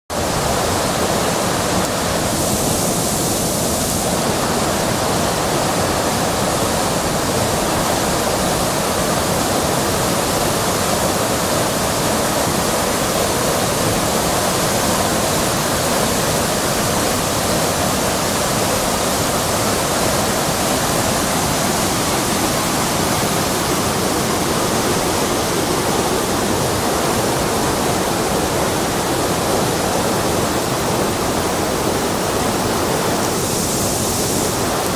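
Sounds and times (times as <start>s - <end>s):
river water rushing: 0.1s - 34.9s.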